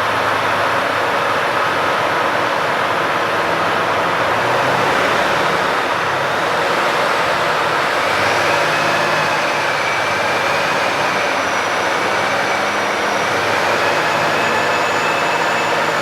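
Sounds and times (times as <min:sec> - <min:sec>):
faint high whine: 0:09.4 - 0:16.0.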